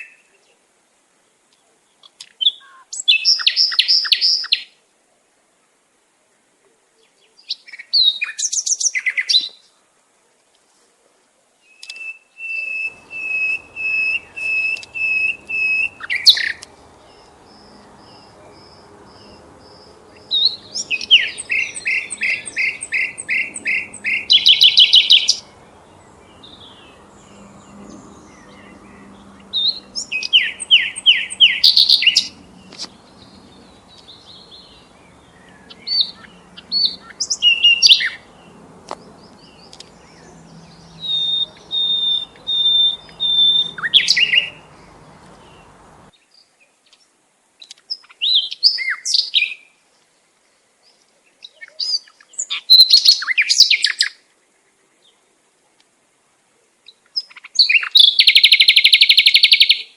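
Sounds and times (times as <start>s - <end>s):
bird chirping song: 0.0s - 4.8s, 6.9s - 9.8s, 11.6s - 55.4s, 56.8s - 59.9s
bird trills: 2.0s - 4.7s, 11.7s - 25.7s, 26.3s - 38.6s, 39.2s - 45.8s, 57.2s - 59.9s.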